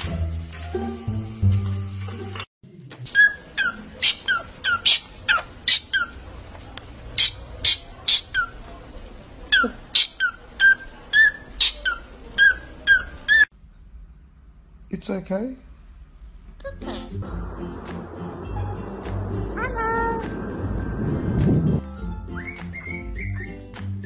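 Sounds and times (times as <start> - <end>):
parrot chirping: 3.1 - 6.3, 7.1 - 8.6, 9.5 - 13.5, 22.2 - 23.7.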